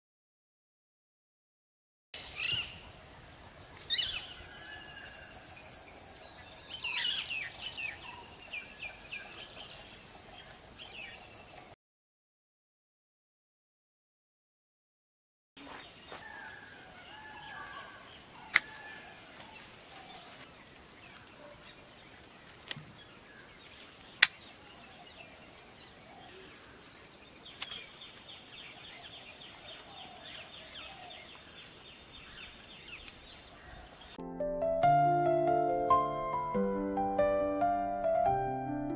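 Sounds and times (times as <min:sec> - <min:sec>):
high insect chirr: 0:02.2 - 0:11.8, 0:15.6 - 0:34.2
sharp clicks: 0:27.6 - 0:27.9.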